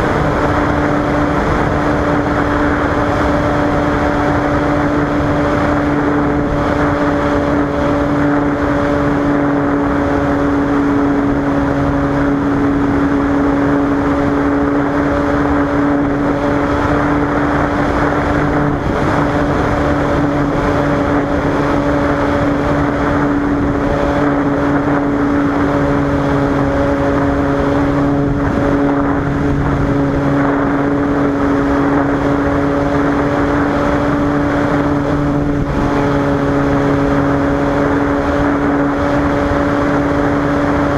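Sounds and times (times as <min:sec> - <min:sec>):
propeller plane engine droning: 0:00.0 - 0:40.9.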